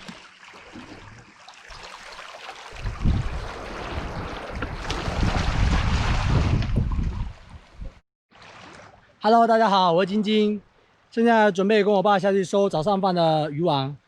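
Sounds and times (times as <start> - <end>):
sea: 0.0 - 14.0
wind buffeting microphone: 2.7 - 8.0.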